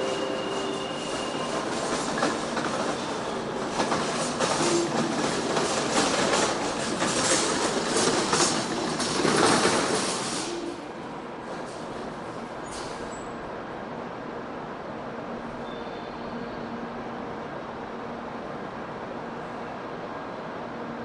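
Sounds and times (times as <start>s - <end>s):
train wheels clacking over rail joints: 1.1s - 10.7s.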